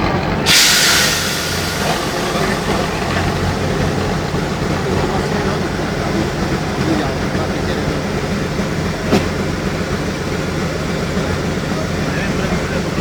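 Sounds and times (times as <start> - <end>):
diesel engine running at low revs: 0.0 - 13.0
loud hiss of released air: 0.5 - 4.5.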